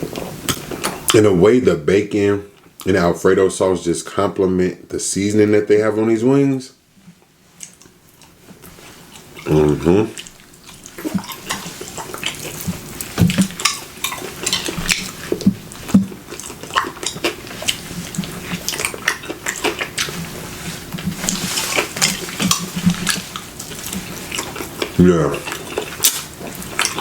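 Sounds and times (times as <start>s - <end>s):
wet chewing and smacking: 7.2s - 27.0s.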